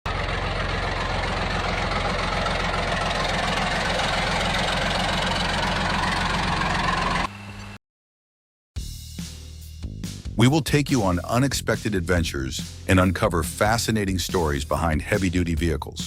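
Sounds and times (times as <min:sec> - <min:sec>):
heavy engine humming: 0:00.1 - 0:07.8.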